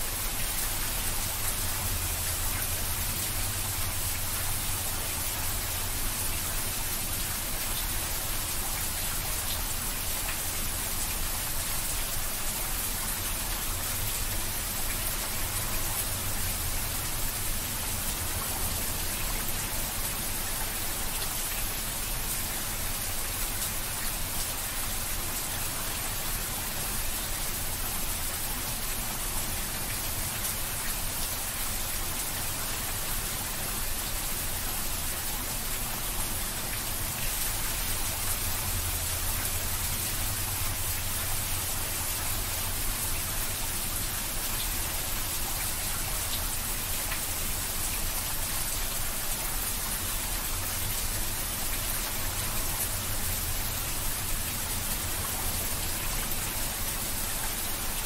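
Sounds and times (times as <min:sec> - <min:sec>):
heavy rain on wet ground: 0:00.0 - 0:58.0.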